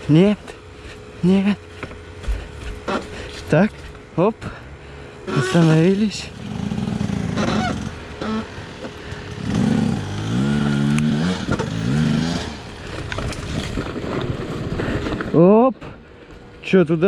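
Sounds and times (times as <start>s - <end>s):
motorcycle engine revving: 5.2s - 15.4s
bike scraping and clattering: 5.3s - 15.4s.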